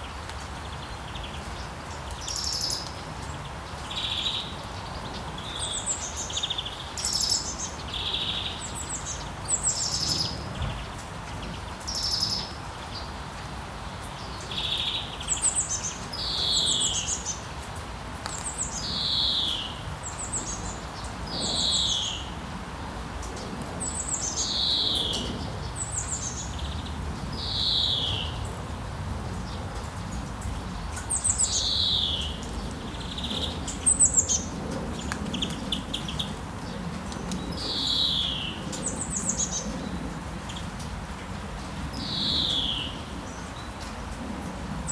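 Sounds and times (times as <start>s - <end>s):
songbird singing trills: 23.8s - 28.5s, 30.8s - 36.4s, 37.4s - 40.7s, 42.0s - 43.7s.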